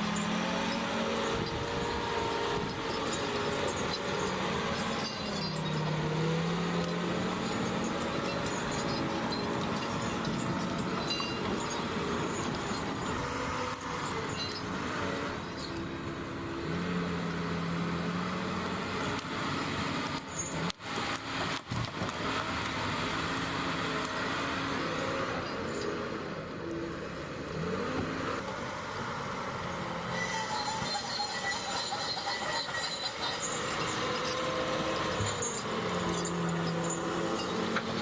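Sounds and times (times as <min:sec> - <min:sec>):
hydraulics whining tones: 0:00.0 - 0:17.0, 0:29.8 - 0:38.0
diesel machinery engine drone: 0:00.0 - 0:38.0.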